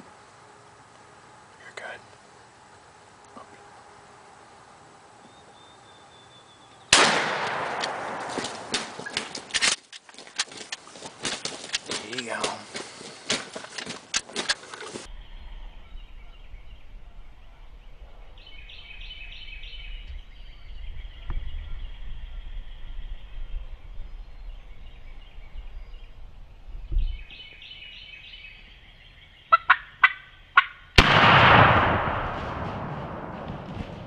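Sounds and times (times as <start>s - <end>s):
low rumble: 31.0s - 34.0s.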